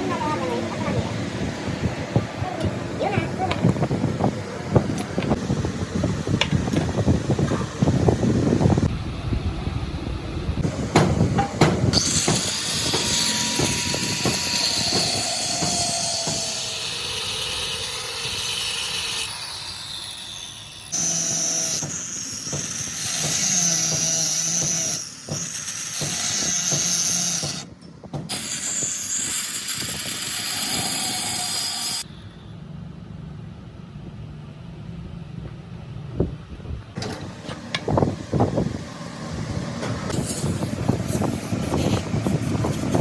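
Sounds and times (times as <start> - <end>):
power tool whining: 10.6 - 27.7, 28.3 - 32.1.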